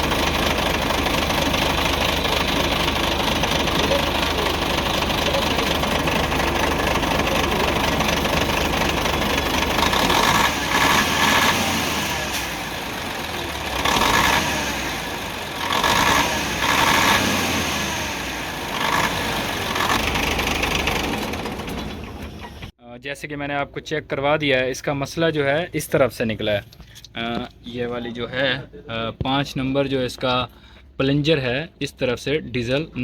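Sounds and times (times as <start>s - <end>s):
diesel engine running unevenly: 0.0s - 22.7s.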